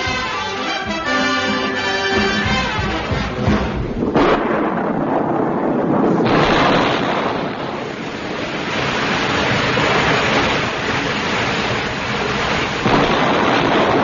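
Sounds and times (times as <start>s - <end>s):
rushing floodwater: 5.6s - 14.0s.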